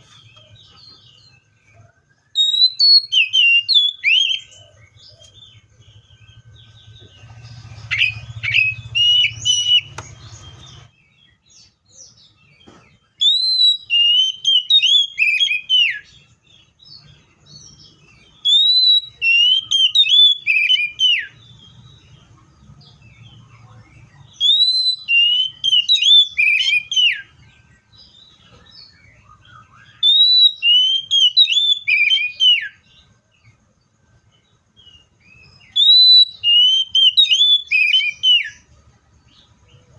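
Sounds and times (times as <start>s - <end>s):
bird singing slurred whistles: 0.0s - 22.2s, 23.9s - 33.5s, 34.4s - 38.7s
faint low hum: 4.0s - 13.6s.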